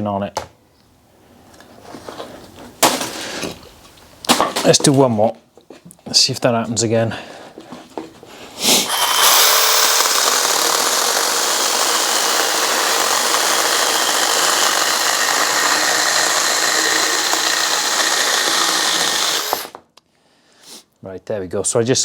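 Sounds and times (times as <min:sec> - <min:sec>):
cordless chainsaw sawing a log: 0:08.8 - 0:19.8.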